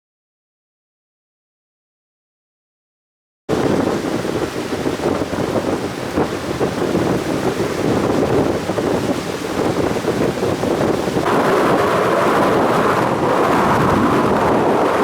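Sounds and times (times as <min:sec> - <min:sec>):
heavy surf breaking on beach: 0:03.5 - 0:15.0
wind buffeting microphone: 0:03.5 - 0:15.0.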